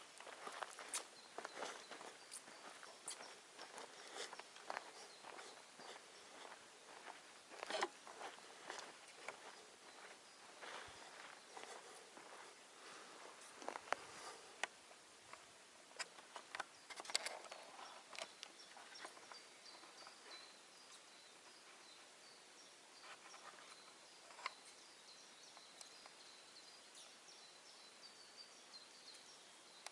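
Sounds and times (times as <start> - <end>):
faint high chirps: 0.5 - 12.6, 16.0 - 29.9.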